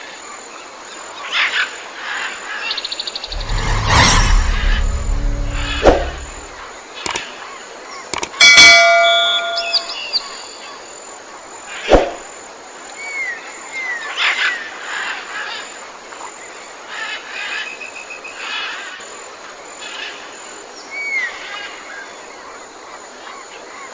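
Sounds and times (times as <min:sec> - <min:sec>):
sharp click: 0:03.3 - 0:07.2, 0:08.2 - 0:08.4.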